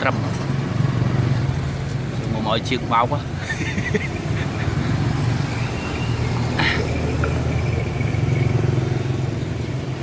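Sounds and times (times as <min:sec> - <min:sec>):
small motorcycle engine running: 0:04.5 - 0:10.0.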